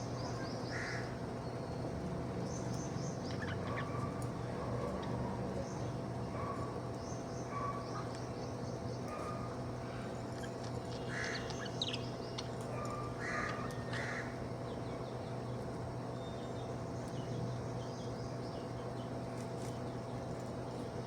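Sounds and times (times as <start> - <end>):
budgerigar raspy calls: 11.1 - 12.0, 12.8 - 14.3.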